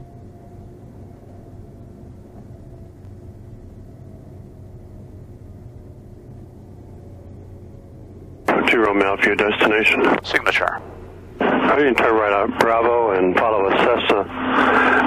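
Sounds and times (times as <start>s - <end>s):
piston engine humming: 0.0s - 15.0s.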